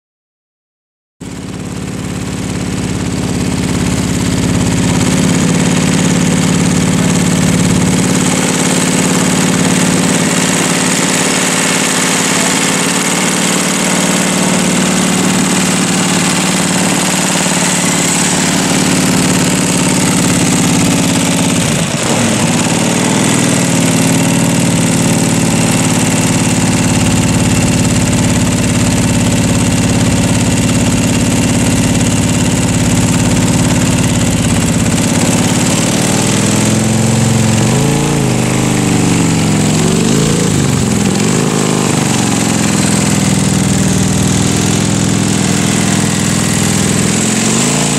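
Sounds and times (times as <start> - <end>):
car engine idling: 1.2 - 47.9.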